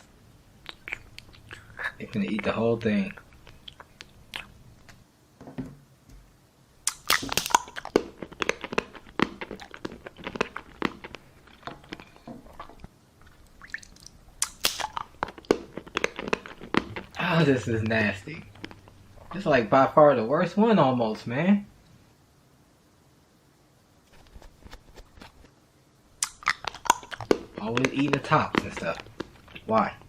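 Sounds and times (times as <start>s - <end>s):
person biting and chewing: 0.0s - 2.5s, 3.1s - 5.0s, 6.8s - 19.4s, 26.2s - 30.0s
wet mouth clicks: 0.0s - 5.0s, 6.8s - 17.2s, 17.8s - 19.4s, 26.2s - 29.8s.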